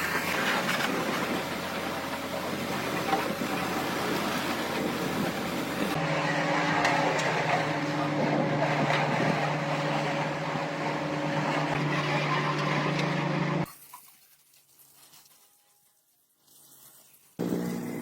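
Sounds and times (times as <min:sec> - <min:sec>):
motor humming: 0:00.9 - 0:13.7, 0:17.4 - 0:18.0.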